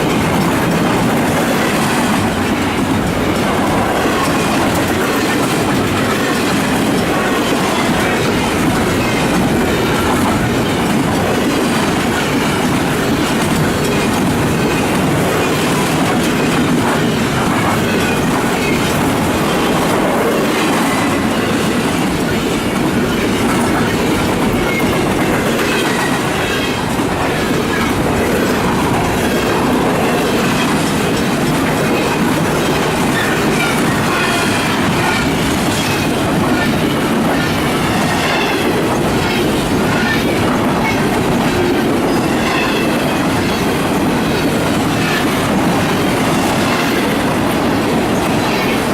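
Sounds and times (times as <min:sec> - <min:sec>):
clickety-clack over rail joints: 0:00.0 - 0:48.9
freight train wheels rumbling on rails: 0:00.0 - 0:48.9.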